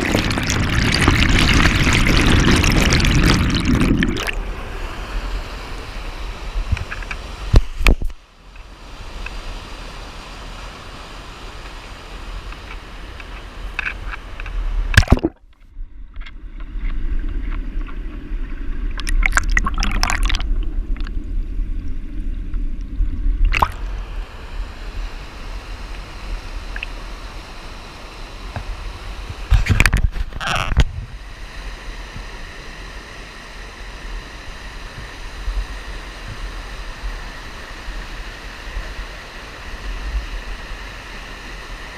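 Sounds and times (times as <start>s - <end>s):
creek water running: 0.0s - 8.0s, 17.2s - 22.0s, 23.4s - 25.0s.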